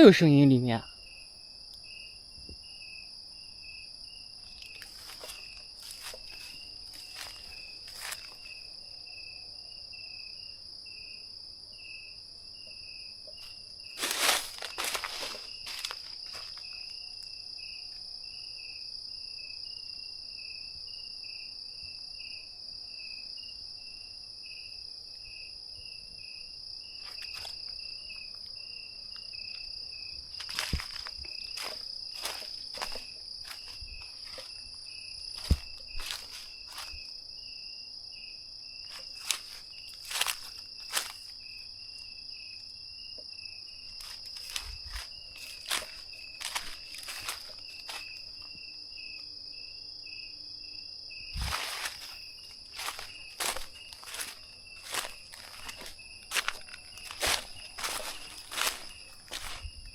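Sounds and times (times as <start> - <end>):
night insects chirring: 0.0 - 59.9
rustles: 4.5 - 8.6, 13.4 - 16.8, 38.9 - 41.4, 43.9 - 48.4, 51.3 - 59.9.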